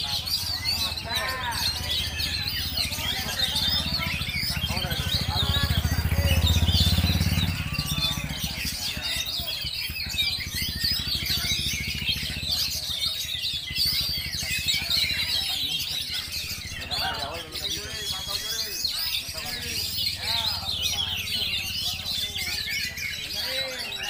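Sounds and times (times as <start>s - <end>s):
birds chirping and whistling: 0.0s - 24.0s.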